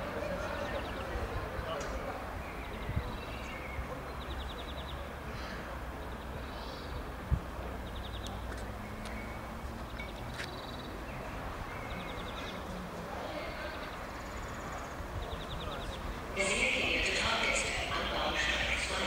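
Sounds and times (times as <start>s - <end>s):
small birds chirping trills: 7.8s - 16.2s.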